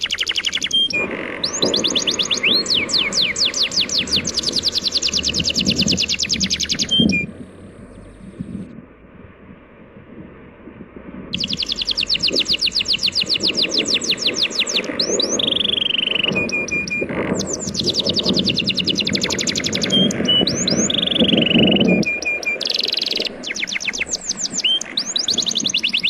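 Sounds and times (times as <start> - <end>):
sea waves: 0.0 - 8.6
songbird singing: 0.0 - 8.7, 11.3 - 26.0.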